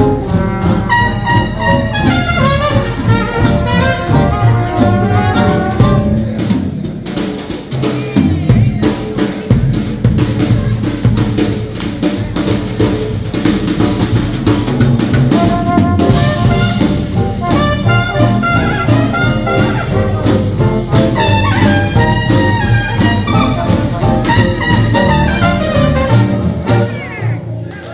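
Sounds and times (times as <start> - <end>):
horns holding notes: 0.0 - 6.6, 15.3 - 27.9
drum break: 0.0 - 27.9
swing jazz band: 0.0 - 27.9.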